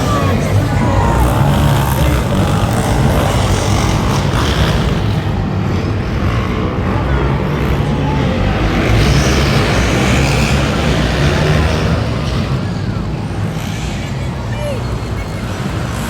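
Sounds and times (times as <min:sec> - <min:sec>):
truck engine running loud: 0:00.0 - 0:16.0.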